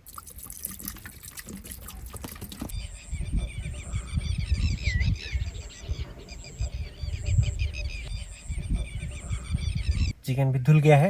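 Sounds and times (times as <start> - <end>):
wild birds chirping: 0.6 - 11.0
uneven low rumble: 2.7 - 10.2.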